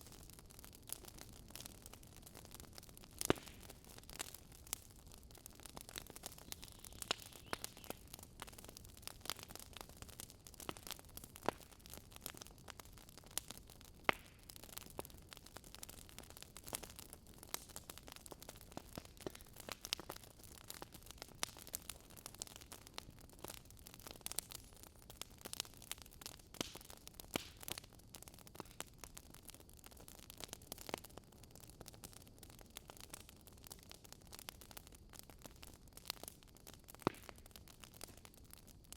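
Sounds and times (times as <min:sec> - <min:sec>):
faint fire hiss: 0:00.0 - 0:29.2
campfire crackling and popping: 0:00.0 - 0:38.9.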